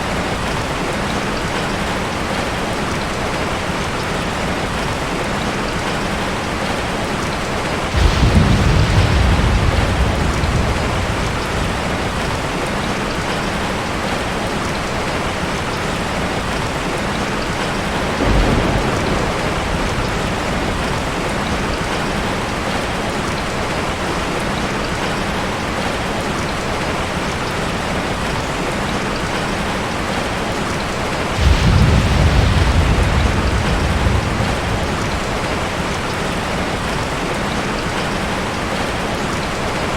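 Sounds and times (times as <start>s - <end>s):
rain falling: 0.0s - 39.9s
thunder rumbling: 7.7s - 24.1s, 31.2s - 38.0s.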